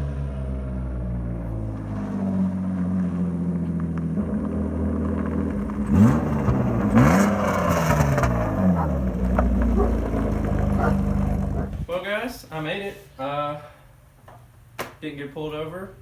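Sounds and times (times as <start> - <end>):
car engine running without exhaust: 0.0 - 11.9.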